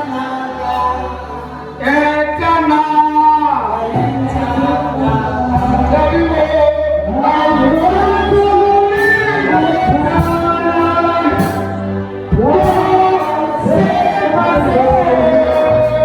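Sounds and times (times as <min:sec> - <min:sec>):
congregation singing gospel chorus: 0:00.0 - 0:16.0
low bass accompaniment: 0:00.0 - 0:16.0.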